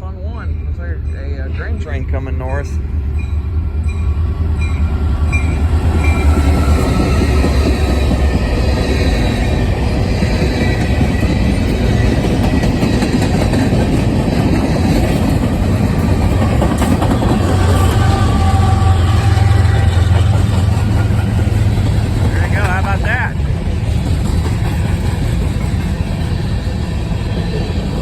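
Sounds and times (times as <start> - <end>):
freight train passing: 0.0 - 28.0.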